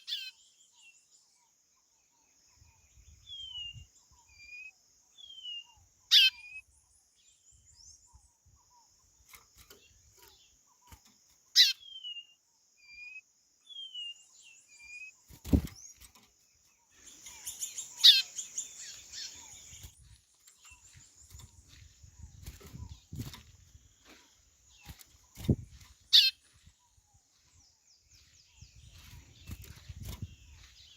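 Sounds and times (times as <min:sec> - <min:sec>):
bird sharp downward-sweeping calls: 0:17.0 - 0:19.8, 0:26.1 - 0:26.4.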